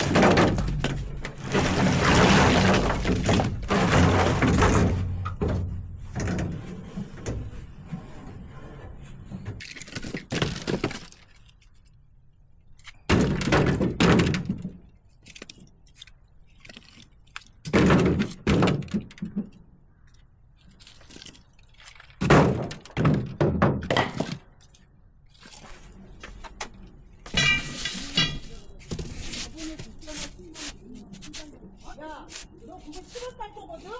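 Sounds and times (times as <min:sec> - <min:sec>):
wooden logs clattering: 0:00.0 - 0:11.6, 0:12.8 - 0:19.7, 0:20.6 - 0:33.9.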